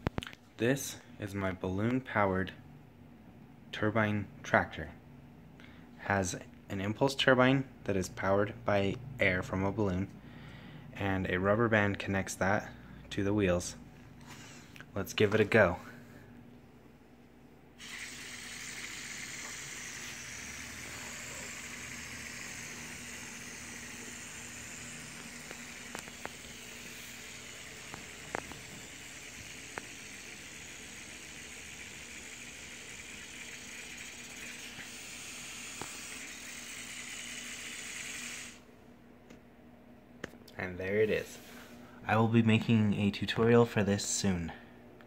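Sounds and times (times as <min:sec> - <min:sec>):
air hissing from balloon: 0:14.2 - 0:14.7, 0:17.8 - 0:38.7.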